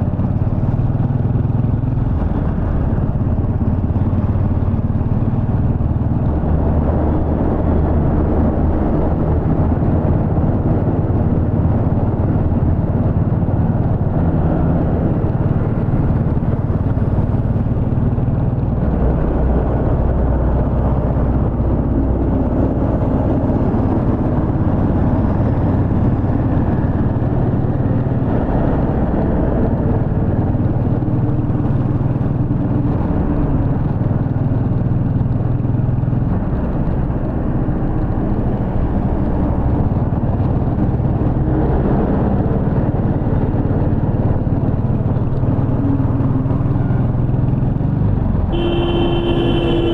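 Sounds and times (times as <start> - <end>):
motorcycle engine running: 0.0 - 49.9
road and wind noise: 0.0 - 49.9.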